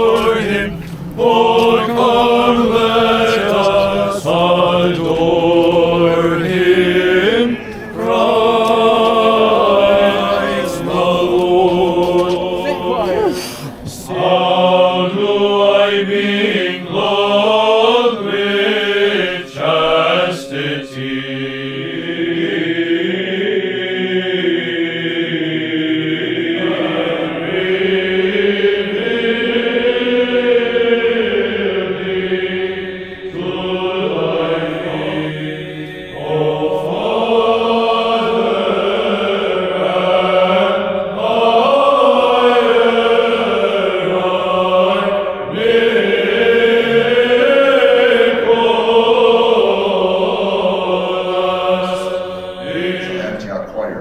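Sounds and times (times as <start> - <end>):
men's choir chanting: 0.0 - 54.0.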